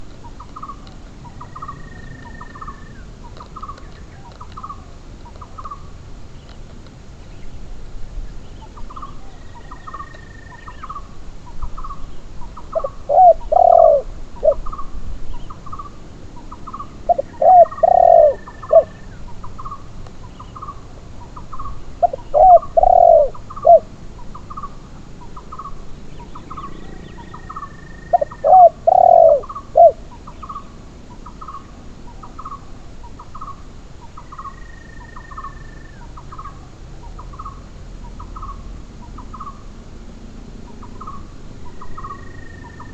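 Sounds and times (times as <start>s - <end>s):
doves cooing: 0.0s - 6.3s, 11.9s - 42.9s
other bird calls: 0.0s - 6.7s, 8.3s - 42.9s.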